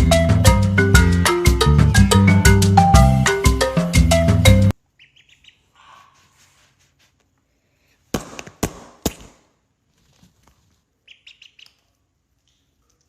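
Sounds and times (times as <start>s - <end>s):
bird chirping: 4.7s - 6.2s, 11.0s - 12.7s.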